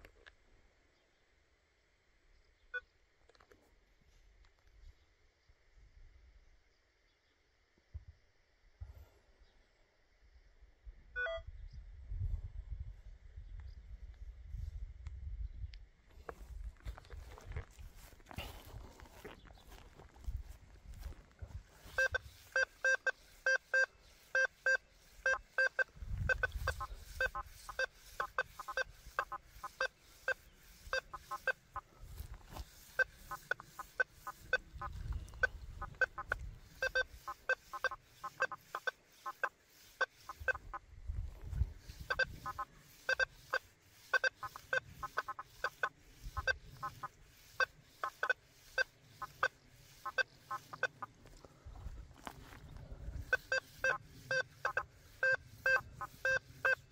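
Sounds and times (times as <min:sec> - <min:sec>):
metal detector short beeps: 0:11.2 - 0:11.5, 0:21.8 - 0:31.8, 0:32.6 - 0:40.8, 0:41.8 - 0:51.0, 0:53.3 - 0:56.9.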